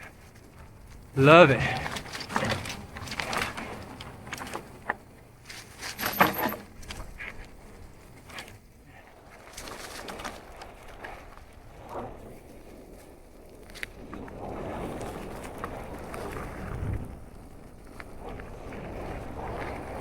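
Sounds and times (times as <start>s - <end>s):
bike knocking and rattling: 1.6s - 7.4s
bike tyres crunching on dirt: 9.3s - 20.0s.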